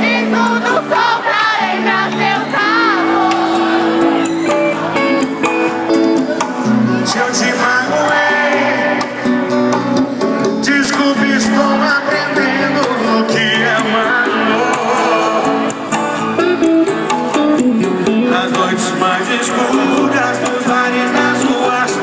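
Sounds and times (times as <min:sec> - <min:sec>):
accompanying instruments: 0:00.0 - 0:22.0
strummed acoustic guitar: 0:00.0 - 0:22.0
person singing with vibrato: 0:10.5 - 0:16.1.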